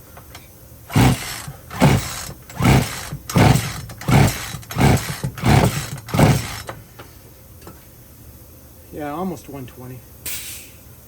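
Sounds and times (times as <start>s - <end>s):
chainsaw recoil starter pulls: 0.9s - 6.8s.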